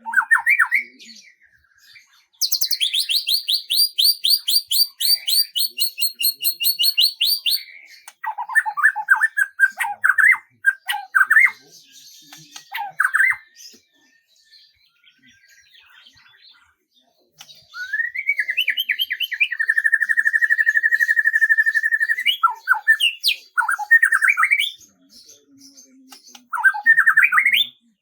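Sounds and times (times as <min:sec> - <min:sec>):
faint high bird chirps: 0:00.0 - 0:28.0
songbird singing trills: 0:00.0 - 0:28.0.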